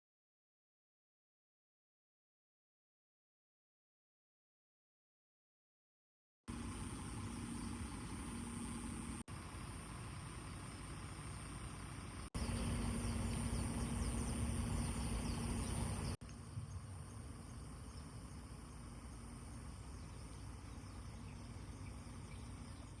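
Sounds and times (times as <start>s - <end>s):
high insect drone: 6.5s - 23.0s
motorcycle engine idling: 6.5s - 23.0s.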